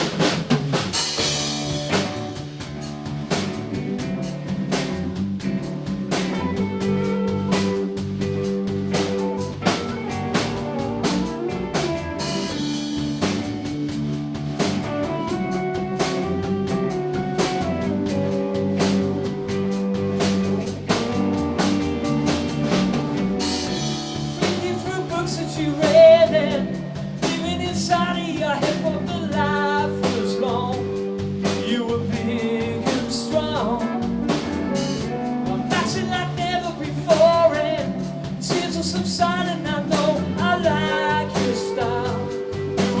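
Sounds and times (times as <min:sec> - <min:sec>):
drum kit: 0:00.0 - 0:43.0
guitar: 0:00.0 - 0:43.0
live rock band: 0:00.0 - 0:43.0
person singing: 0:23.4 - 0:43.0.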